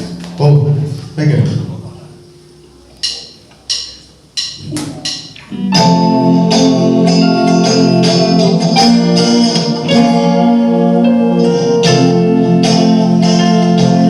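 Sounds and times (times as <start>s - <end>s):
live band music: 0.0s - 14.0s
percussion hits: 3.0s - 10.2s.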